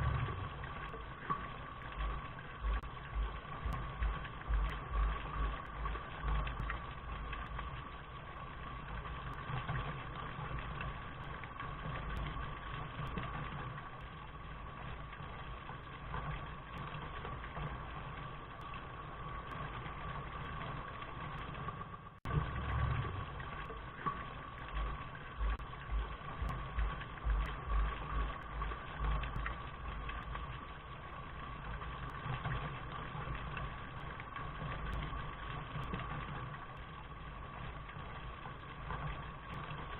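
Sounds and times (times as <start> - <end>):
low rumble: 0.0 - 9.8, 22.2 - 39.9.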